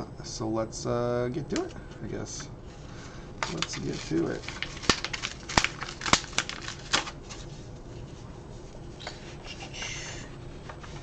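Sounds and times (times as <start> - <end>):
packaging rustling: 3.4 - 7.5.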